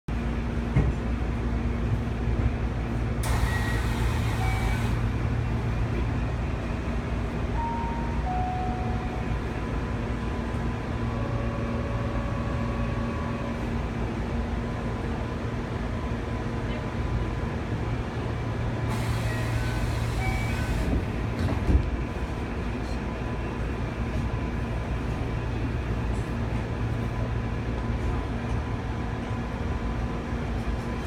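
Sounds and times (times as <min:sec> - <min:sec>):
train equipment humming: 0:00.2 - 0:31.0
long steady tones: 0:07.5 - 0:13.6.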